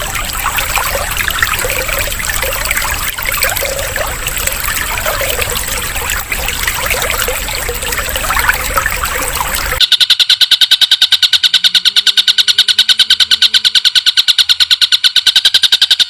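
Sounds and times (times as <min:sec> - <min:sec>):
trickling water: 0:00.0 - 0:09.8
loud high-pitched pulsed call: 0:09.8 - 0:15.2.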